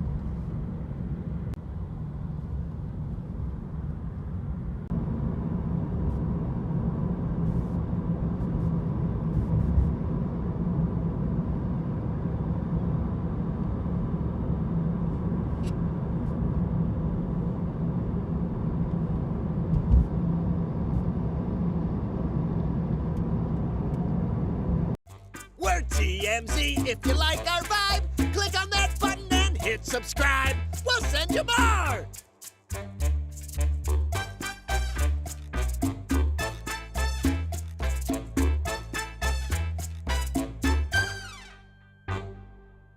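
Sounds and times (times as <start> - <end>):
low thump: 19.7 - 20.2.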